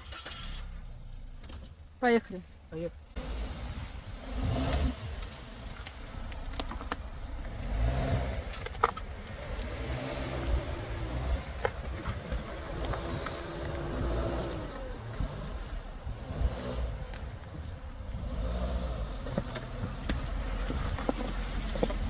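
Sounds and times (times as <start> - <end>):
car road and engine rumble: 0.0 - 22.0
sharp clicks and knocks: 4.7 - 7.7, 8.4 - 9.8, 10.5 - 15.3, 19.1 - 22.0.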